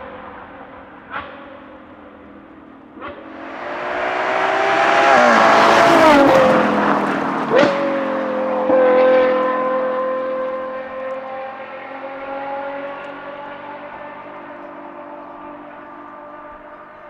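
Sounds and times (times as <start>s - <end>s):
car engine accelerating: 0.2s - 17.0s
gear upshifts: 3.3s - 8.2s.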